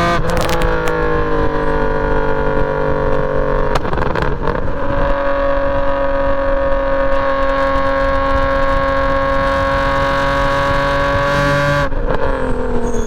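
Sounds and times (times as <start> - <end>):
car engine revs dropping: 9.2 - 13.0.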